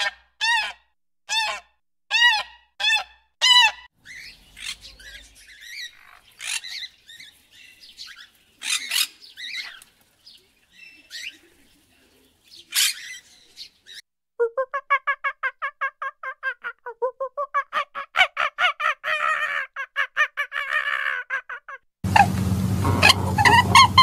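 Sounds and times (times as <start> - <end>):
fast repeated bird calls: 2.2 - 9.8
budgerigars chattering: 2.3 - 9.8, 12.5 - 14.0, 22.1 - 24.0
swan honking call: 22.1 - 24.0.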